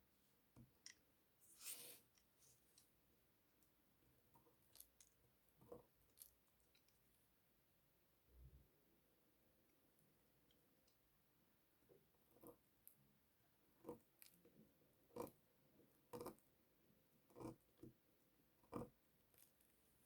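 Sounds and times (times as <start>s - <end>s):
soap being cut: 16.0s - 16.4s, 17.2s - 17.9s, 18.6s - 19.0s.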